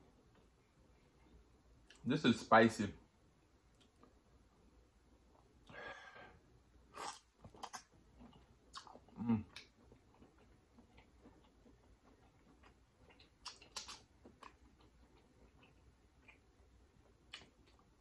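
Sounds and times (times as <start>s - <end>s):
person chewing quietly: 0.1s - 2.1s, 3.7s - 4.2s, 5.2s - 18.0s
soft breath: 5.6s - 6.5s
wet mouth clicks and smacks: 7.0s - 10.5s, 11.8s - 14.9s, 17.2s - 17.9s.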